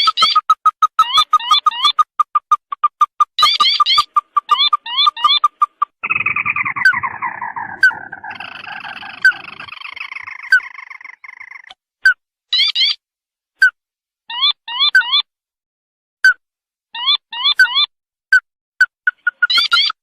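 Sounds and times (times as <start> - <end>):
crake rattling trill: 0.0 - 10.0
short sharp bird notes: 3.2 - 11.7
quick rising bird notes: 3.4 - 11.7.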